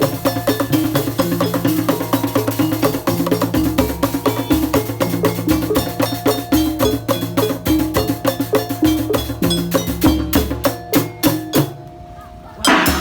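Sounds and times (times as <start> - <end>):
low held tones: 0.0 - 13.0
metallic percussion and drum: 0.0 - 13.0.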